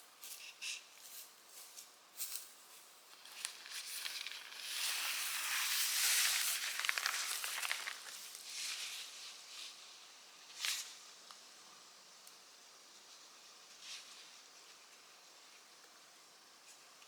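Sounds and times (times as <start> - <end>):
rustling with fine crackles: 1.0 - 11.0.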